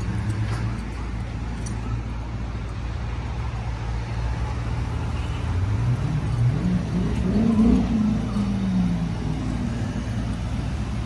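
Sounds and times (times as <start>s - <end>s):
car engine revving: 5.6s - 11.0s.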